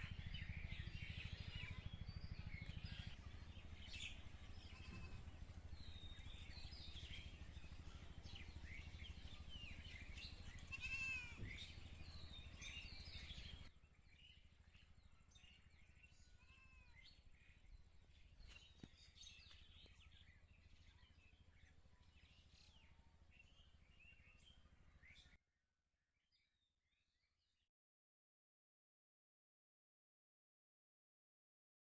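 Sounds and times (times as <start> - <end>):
birds chirping: 0.0 - 25.4
low outdoor background: 0.0 - 25.4
loud arching bird call: 10.6 - 11.7.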